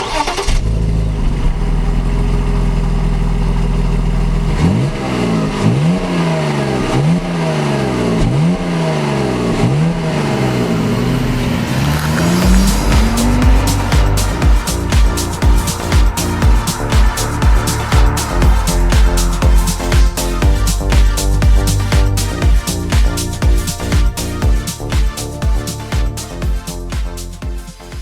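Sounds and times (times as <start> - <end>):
car engine revving: 0.3 - 26.8
electronic music with heavy beat: 12.0 - 28.0.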